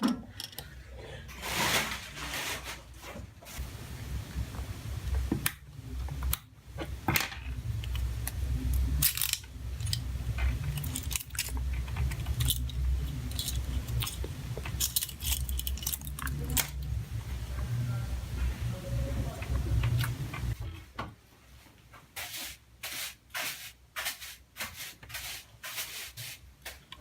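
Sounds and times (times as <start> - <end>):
tools and small parts clinking: 0.0 - 0.7, 7.1 - 16.9
low steady hum: 3.0 - 21.6.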